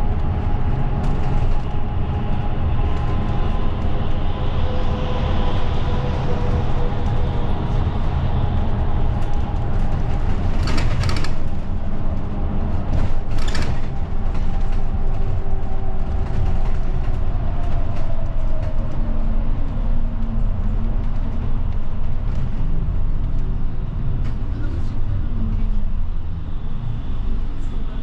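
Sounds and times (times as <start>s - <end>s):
bus engine rumble: 0.0s - 28.0s
road noise: 0.0s - 28.0s.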